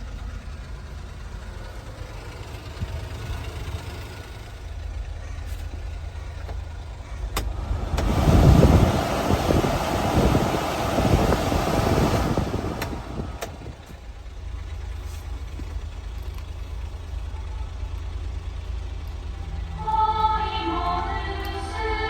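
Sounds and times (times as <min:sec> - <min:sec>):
truck engine running: 0:00.0 - 0:22.0
loud rushing noise: 0:07.4 - 0:13.8.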